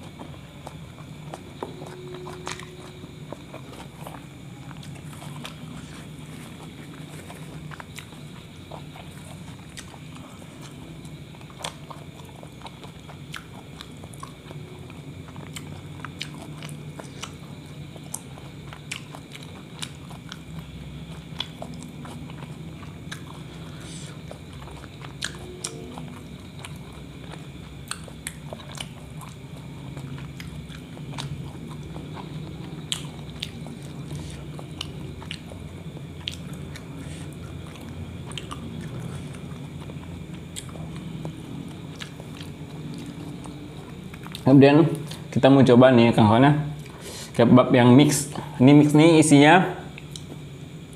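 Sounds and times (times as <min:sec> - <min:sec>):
steady low hum: 0:00.0 - 0:50.9
wet chewing mouth clicks: 0:15.3 - 0:43.5.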